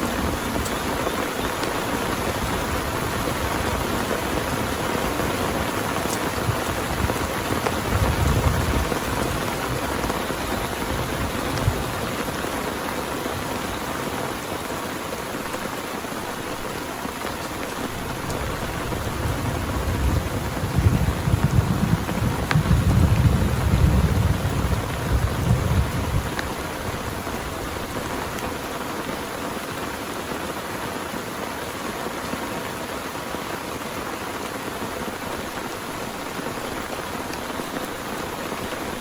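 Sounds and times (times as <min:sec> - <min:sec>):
thunder rumbling: 0:00.0 - 0:13.6, 0:17.8 - 0:28.7
heavy rain falling: 0:00.0 - 0:39.0.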